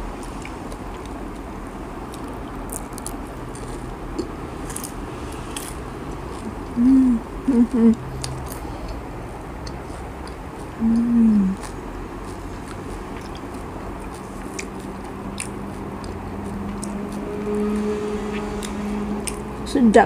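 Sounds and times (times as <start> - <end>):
crunchy chewing: 0.0 - 19.6
person humming with enjoyment: 6.4 - 8.1, 10.8 - 11.6.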